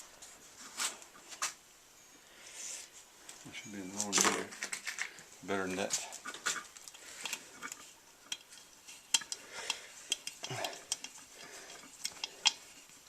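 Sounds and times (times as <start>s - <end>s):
metallic clicks of hand tools: 6.8s - 12.7s.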